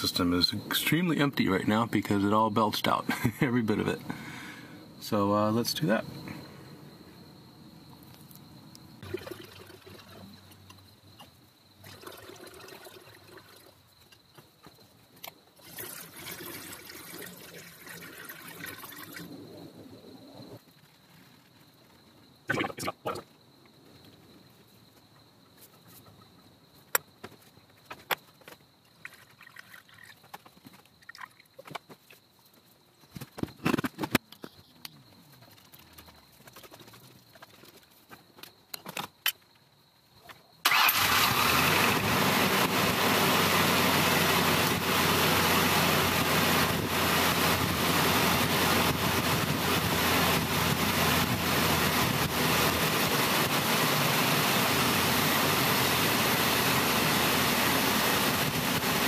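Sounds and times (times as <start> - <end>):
car engine running loudly: 41.0 - 59.0.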